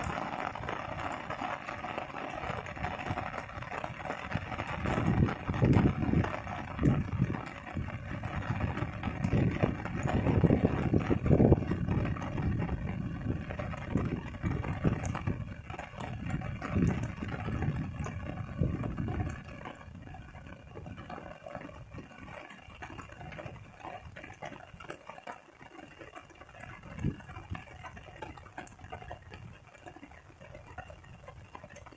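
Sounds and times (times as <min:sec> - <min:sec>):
rain: 0:00.0 - 0:31.9
wind gusts on microphone: 0:02.5 - 0:21.1, 0:26.7 - 0:29.6.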